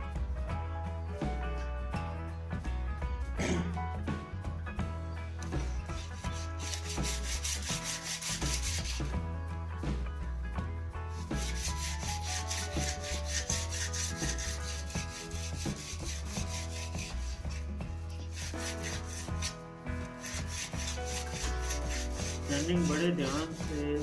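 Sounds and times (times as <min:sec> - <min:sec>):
sandpaper rubbing on wood: 0:05.8 - 0:09.1, 0:11.2 - 0:24.0.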